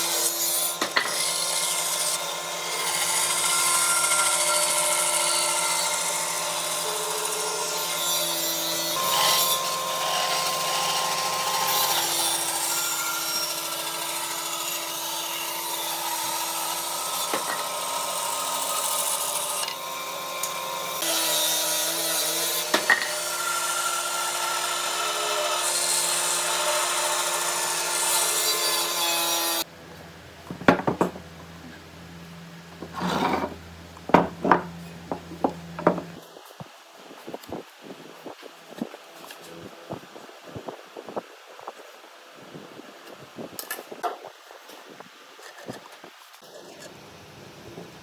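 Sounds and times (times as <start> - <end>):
clattering knocks: 30.4 - 31.3, 32.7 - 36.2
sharp knocks: 30.4 - 31.3, 32.8 - 36.2
power tool motor hum: 32.7 - 36.2
rasping wood noise: 32.8 - 36.2.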